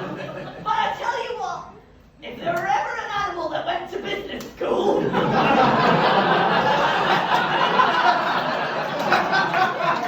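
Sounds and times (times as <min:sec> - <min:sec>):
audience laughing: 0:00.0 - 0:00.7, 0:05.0 - 0:10.0.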